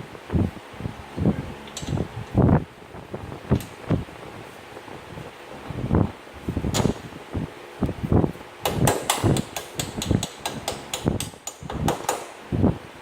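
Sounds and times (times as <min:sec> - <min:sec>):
hand tools knocking on metal: 0:08.6 - 0:12.3
sharp metallic clicks: 0:08.6 - 0:12.3.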